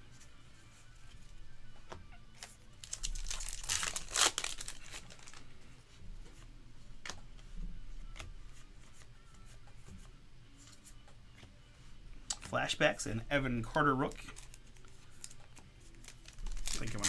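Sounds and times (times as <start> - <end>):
cards ticking: 2.4 - 5.4, 12.3 - 17.0
wrapper tearing and crinkling: 2.8 - 5.4, 14.1 - 15.4, 16.0 - 17.0.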